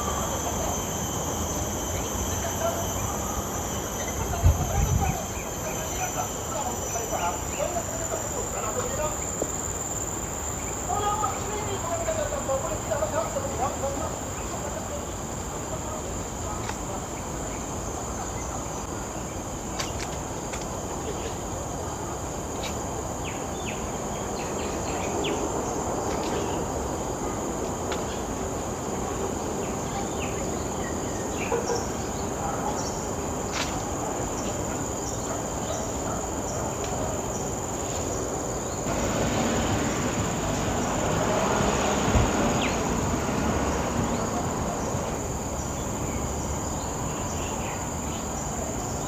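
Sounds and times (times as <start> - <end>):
insects droning: 0.0 - 49.0
broad rushing noise: 36.6 - 47.1.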